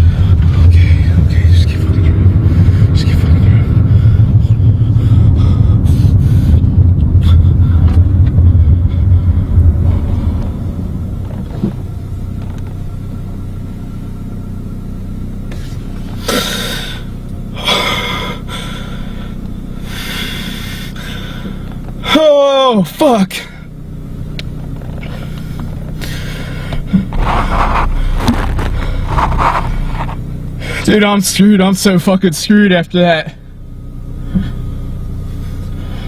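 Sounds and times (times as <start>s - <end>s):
low engine rumble: 0.0s - 36.0s
short loud breaths: 15.5s - 21.6s.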